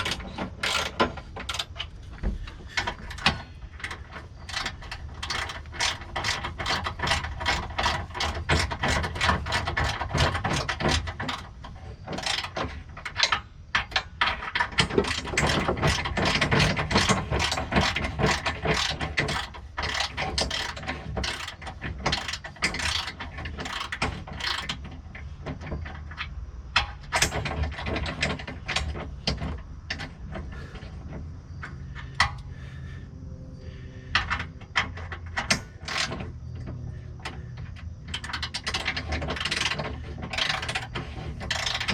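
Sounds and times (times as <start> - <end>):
ratchet wrench clicking: 38.1 - 41.9.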